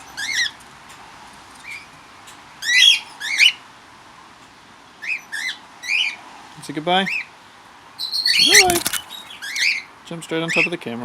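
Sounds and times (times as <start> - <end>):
bird harsh calls: 8.0 - 9.9.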